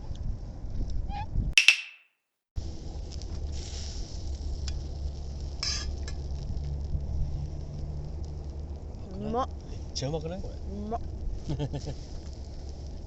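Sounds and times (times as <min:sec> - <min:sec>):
food sizzling in a pan: 0:03.4 - 0:06.8.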